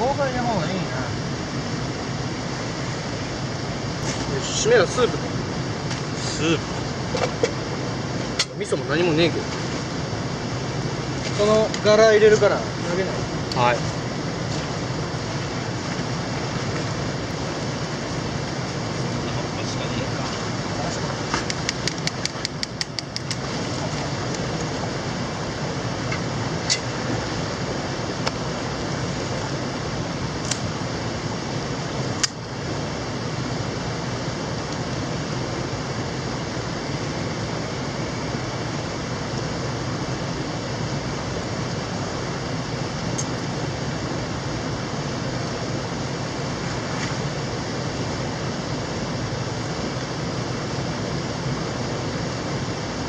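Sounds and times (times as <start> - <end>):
sharp clicks: 21.4 - 23.4.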